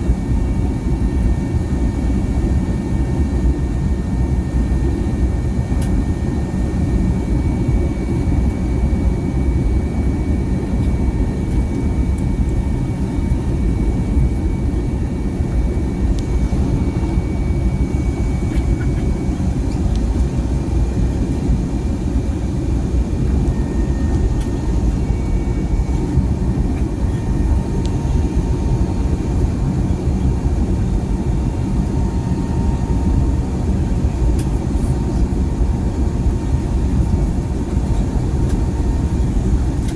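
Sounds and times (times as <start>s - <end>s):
jet engine cabin rumble: 0.0s - 39.9s
faint whining tones: 12.2s - 35.0s.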